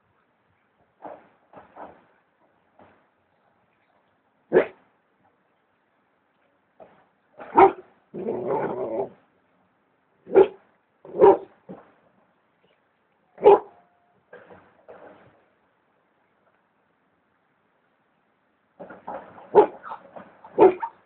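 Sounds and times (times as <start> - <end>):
dog barking: 4.5 - 4.8, 7.5 - 7.8, 10.3 - 11.5, 13.4 - 14.0, 19.5 - 20.0, 20.6 - 21.0
dog growling: 8.1 - 9.2.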